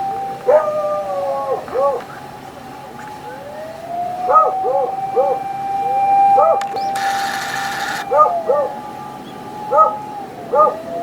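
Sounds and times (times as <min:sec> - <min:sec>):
emergency vehicle siren wailing: 0:00.0 - 0:11.0
dog yelping: 0:00.4 - 0:00.8, 0:01.4 - 0:02.1, 0:04.2 - 0:05.4, 0:06.4 - 0:08.8, 0:09.7 - 0:11.0.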